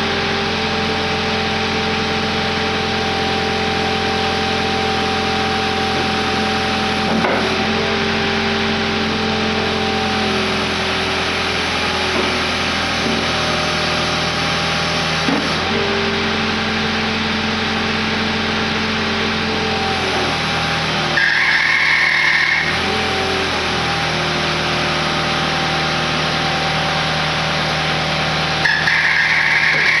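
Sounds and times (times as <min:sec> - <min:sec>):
skid steer engine running: 0:00.0 - 0:30.0
high hydraulic whine: 0:26.1 - 0:30.0.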